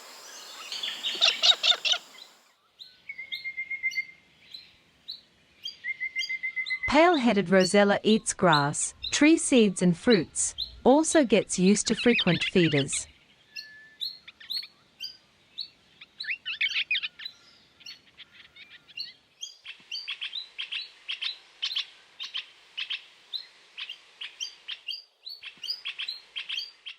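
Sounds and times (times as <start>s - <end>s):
parrots chirping: 0.0s - 2.4s.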